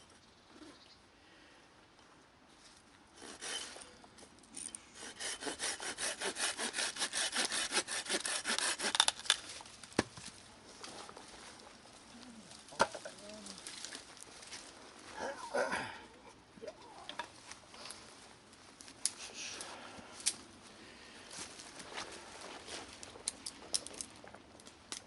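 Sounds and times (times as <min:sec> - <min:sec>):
hand saw cutting wood: 0:03.2 - 0:03.9, 0:05.0 - 0:09.3.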